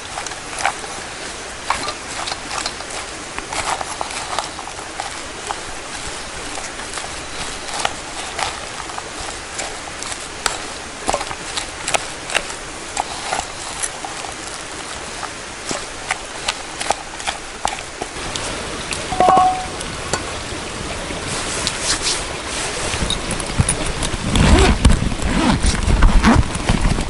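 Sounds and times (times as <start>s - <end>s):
ringing clink: 19.1s - 19.8s.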